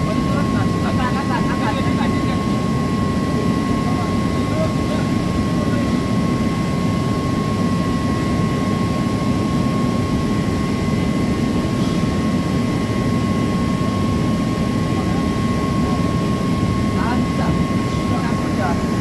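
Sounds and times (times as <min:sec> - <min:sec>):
loud machinery drone: 0:00.0 - 0:07.4
high machine whine: 0:00.0 - 0:19.0.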